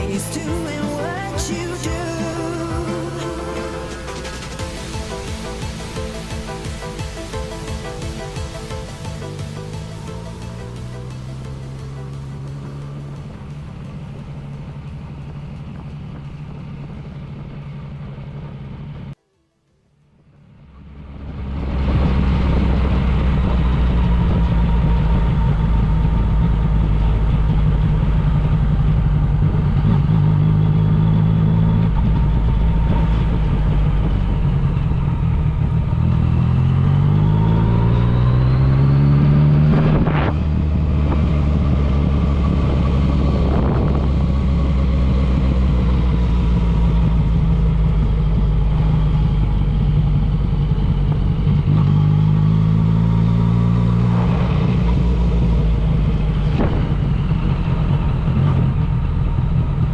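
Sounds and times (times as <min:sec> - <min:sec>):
motorcycle engine running: 0:00.0 - 0:19.2, 0:20.3 - 0:59.9
sharp crack: 0:54.2 - 0:59.3.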